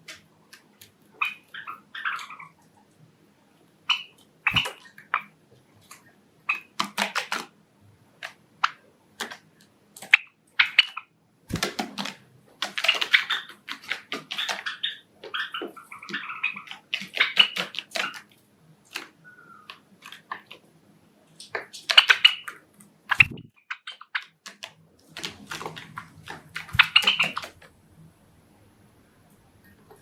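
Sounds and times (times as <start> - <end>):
sparrows chirping: 1.2 - 2.6, 3.8 - 5.3, 12.9 - 18.2, 19.2 - 20.4, 26.7 - 27.5.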